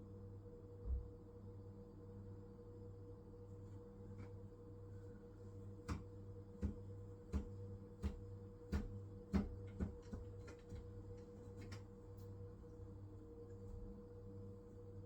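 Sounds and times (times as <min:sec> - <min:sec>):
washing machine knocking: 0:05.9 - 0:10.9.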